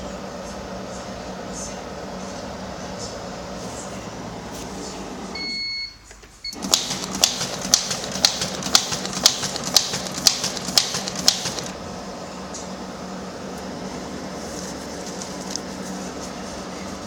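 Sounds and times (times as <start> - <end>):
short beeps: 5.4 - 6.6
sharp mechanical clicks: 6.5 - 11.8.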